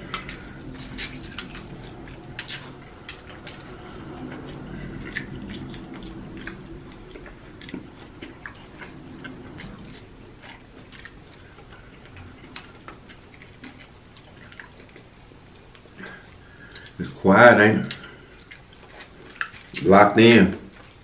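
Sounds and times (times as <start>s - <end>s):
chewing crispy chicken: 0.0s - 21.0s.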